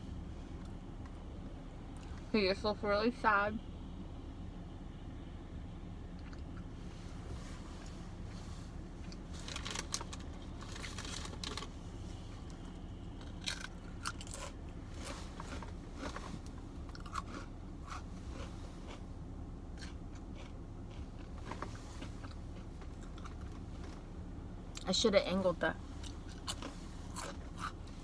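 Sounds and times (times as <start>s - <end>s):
steady low hum: 0.0s - 28.0s
person chewing crunchy bread: 8.8s - 24.0s, 26.0s - 28.0s.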